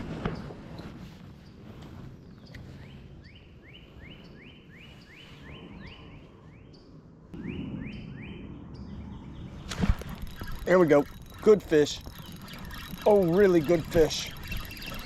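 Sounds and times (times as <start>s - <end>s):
songbird whistling rising notes: 7.4s - 15.0s.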